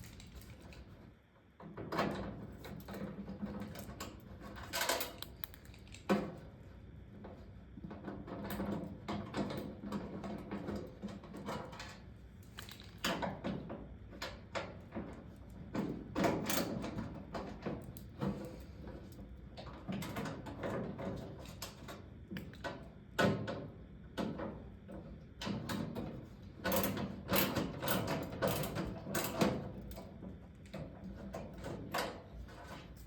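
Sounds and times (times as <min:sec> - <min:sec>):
metal parts knocking and rattling: 0:08.0 - 0:18.4.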